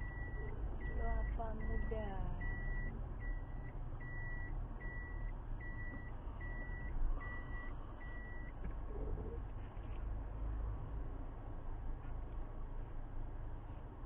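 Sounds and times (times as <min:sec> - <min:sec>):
car warning beeps: 0:00.0 - 0:09.1
car rumble: 0:00.0 - 0:14.0.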